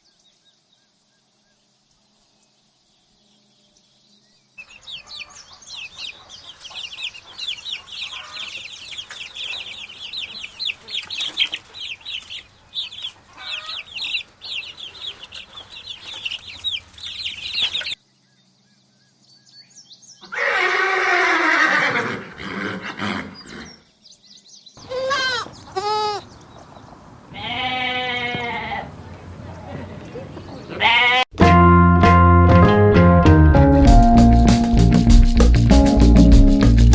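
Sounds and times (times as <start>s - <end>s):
chicks peeping: 4.6s - 18.0s, 24.8s - 30.8s
farm animals calling: 4.6s - 18.0s, 24.8s - 31.3s.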